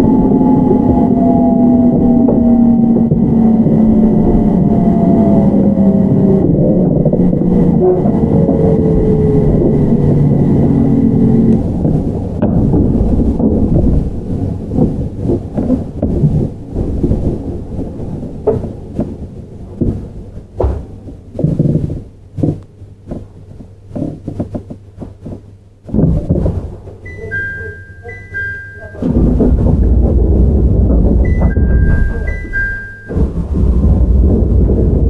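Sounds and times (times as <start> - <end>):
train rumble: 0.0 - 22.4, 26.1 - 35.0
wheel thumps over rail joints: 11.6 - 17.4, 18.3 - 27.1, 29.0 - 35.0
two-tone electronic chime: 27.1 - 29.2, 31.2 - 33.4.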